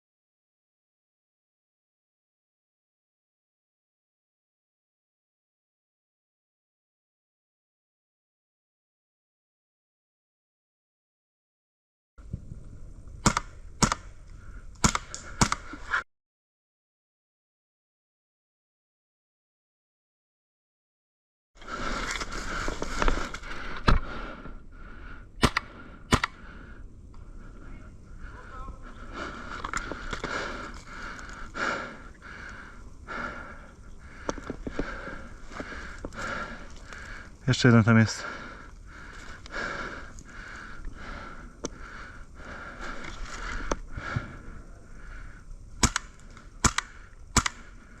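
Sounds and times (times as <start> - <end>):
airsoft rifle shots: 13.2 - 14.1, 14.8 - 15.6, 25.4 - 26.4, 45.8 - 47.7.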